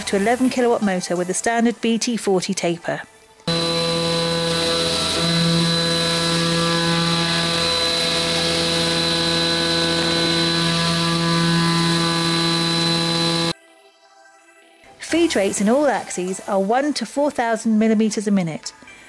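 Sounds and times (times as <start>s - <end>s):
machining centre whine: 3.5s - 13.6s.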